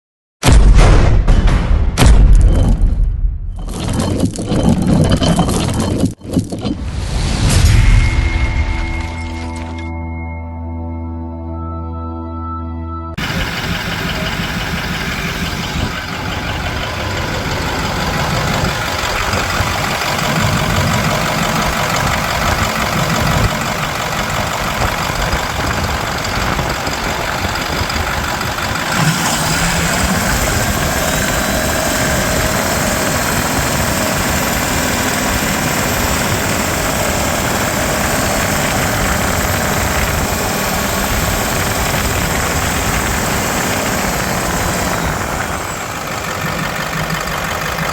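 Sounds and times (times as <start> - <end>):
diesel engine idling: 13.2 - 47.9.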